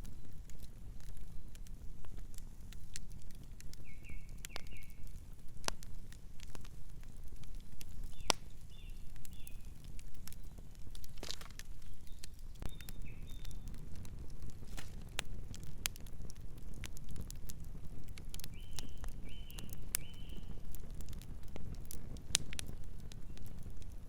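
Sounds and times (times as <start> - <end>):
campfire crackling and popping: 0.0 - 24.0.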